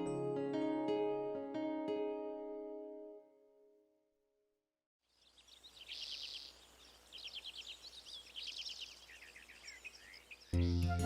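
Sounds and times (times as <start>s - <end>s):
high chirping calls: 5.2s - 11.0s.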